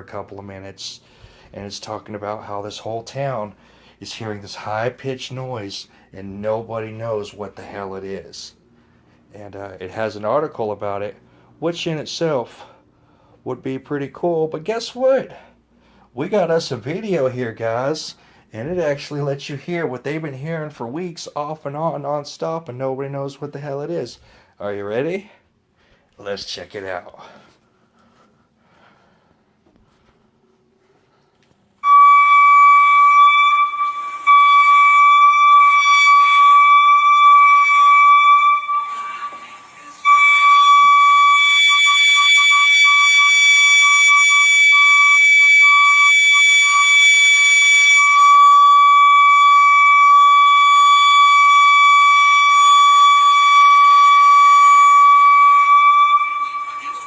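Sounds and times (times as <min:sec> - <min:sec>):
high-pitched alarm-like tone: 0:31.8 - 0:57.0.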